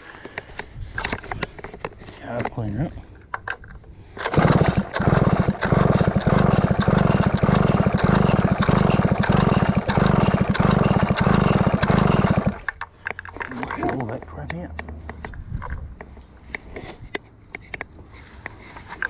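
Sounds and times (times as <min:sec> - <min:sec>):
chainsaw engine chuffing: 0:04.2 - 0:12.8.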